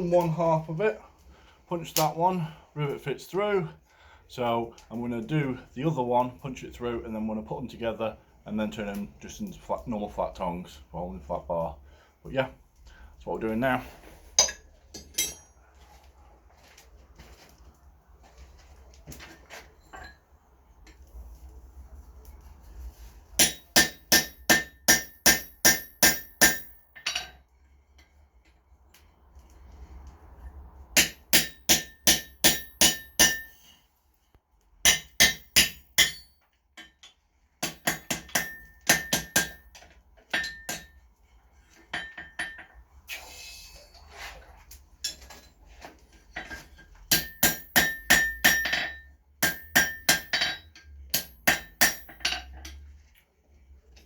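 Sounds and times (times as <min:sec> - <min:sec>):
hammer striking anvil: 0:14.4 - 0:15.5, 0:23.4 - 0:27.3, 0:31.0 - 0:33.7, 0:34.9 - 0:36.3, 0:37.6 - 0:39.6, 0:40.4 - 0:40.9, 0:47.1 - 0:52.4.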